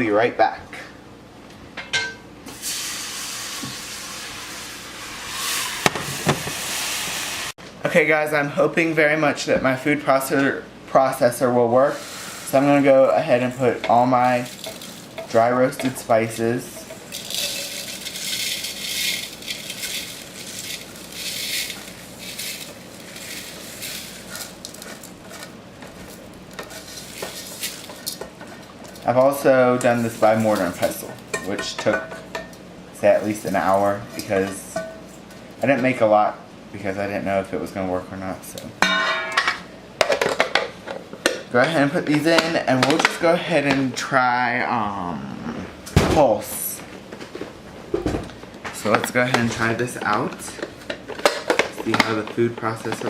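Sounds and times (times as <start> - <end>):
kitchenware clinking: 1.8 - 2.2, 13.6 - 29.1, 29.8 - 32.6, 38.8 - 43.2
steady hiss: 11.7 - 25.5
seeds rattling into a bowl: 14.1 - 28.2, 28.9 - 31.2.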